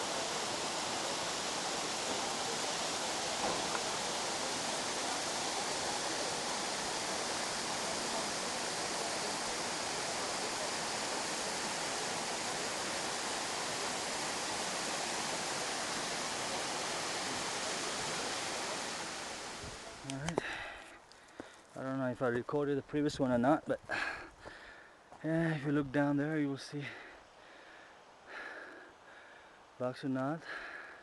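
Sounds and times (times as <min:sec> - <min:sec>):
waterfall rushing: 0:00.0 - 0:20.2.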